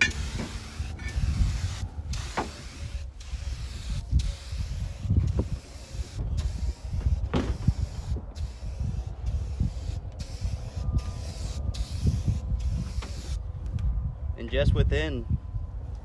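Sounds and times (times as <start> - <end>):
aerosol spray paint hissing: 0.0 - 13.4.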